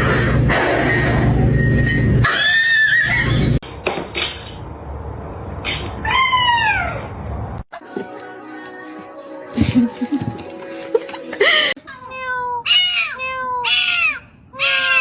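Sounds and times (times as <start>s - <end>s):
cat meowing: 12.0s - 15.0s.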